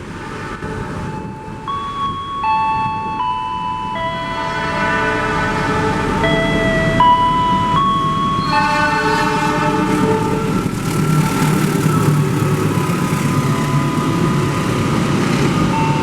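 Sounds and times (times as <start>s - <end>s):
train rumbling past: 0.0s - 16.0s
thin high tone: 0.6s - 16.0s
train horn: 4.3s - 6.9s, 8.4s - 16.0s.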